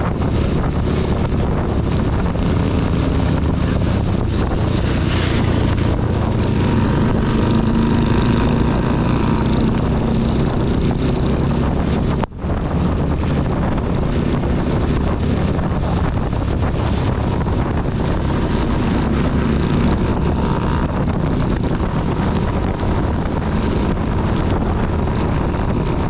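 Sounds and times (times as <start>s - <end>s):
motorcycle engine running: 0.0s - 26.0s
wind noise on microphone: 0.0s - 26.0s.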